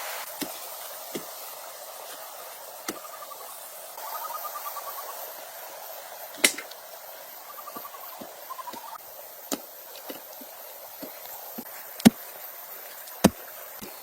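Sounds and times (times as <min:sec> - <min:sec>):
steady hiss: 0:00.0 - 0:14.0
rapid pulsed chirping calls: 0:01.6 - 0:09.9.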